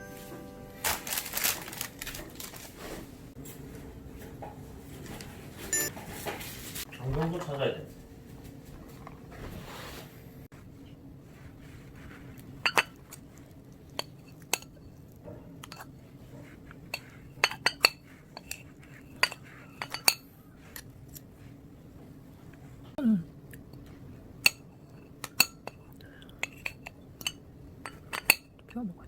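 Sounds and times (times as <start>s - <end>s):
utensils clinking against dishes: 12.6s - 13.0s, 19.2s - 20.3s, 26.4s - 28.8s.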